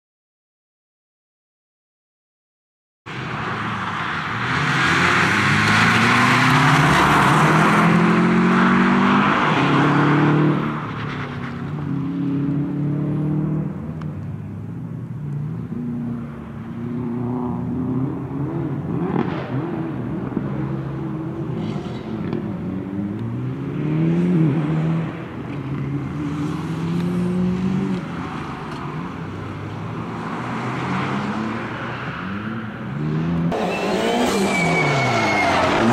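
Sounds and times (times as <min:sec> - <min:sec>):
car engine revving hard: 0:04.5 - 0:10.8.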